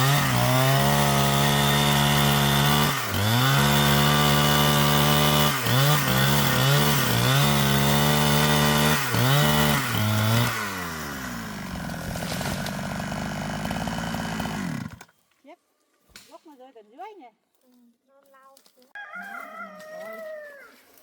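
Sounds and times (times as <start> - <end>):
chainsaw cutting wood: 0.0 - 15.2.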